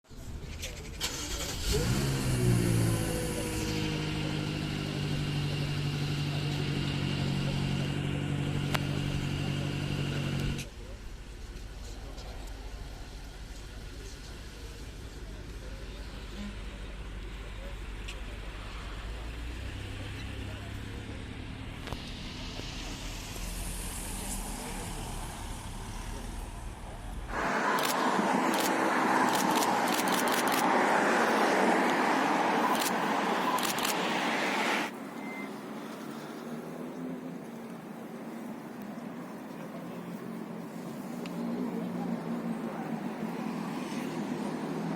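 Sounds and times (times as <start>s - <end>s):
car engine idling: 0.4s - 30.6s.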